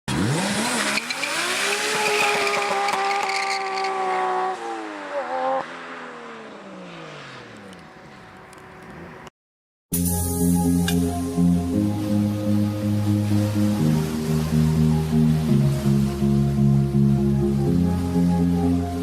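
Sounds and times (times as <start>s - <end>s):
car engine revving: 0.1s - 9.3s.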